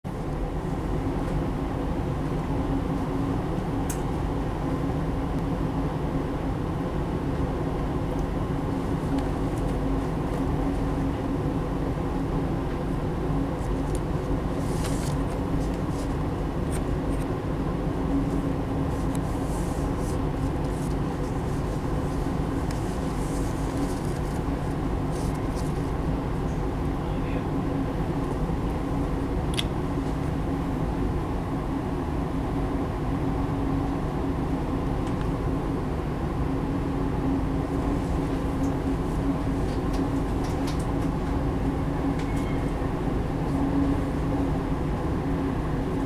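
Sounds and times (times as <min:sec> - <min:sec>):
steady hum: 0:00.1 - 0:46.0
train wheels rumbling on rails: 0:00.5 - 0:46.0.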